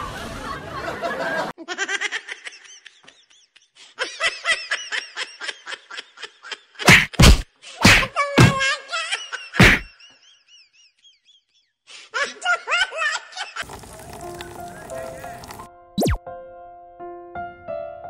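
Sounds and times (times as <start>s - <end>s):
loud whacks: 6.9s - 8.5s, 9.6s - 9.9s
outdoor background noise: 13.6s - 15.7s.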